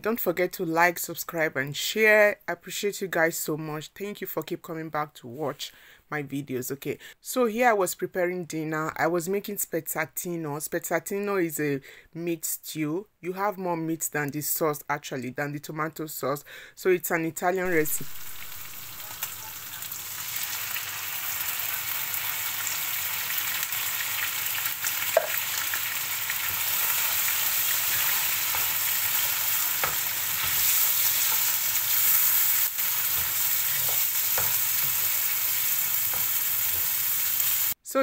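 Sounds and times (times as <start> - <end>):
meat sizzling in a frying pan: 17.7 - 37.8
spatula knocking and scraping pan: 26.4 - 37.0.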